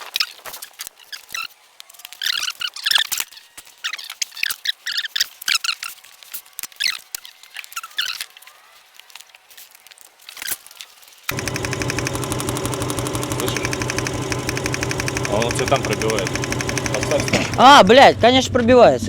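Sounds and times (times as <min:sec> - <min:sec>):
high-pitched squeaks and clicks: 0:00.2 - 0:08.5
fast regular ticking: 0:11.3 - 0:18.1
car engine running: 0:11.3 - 0:18.3.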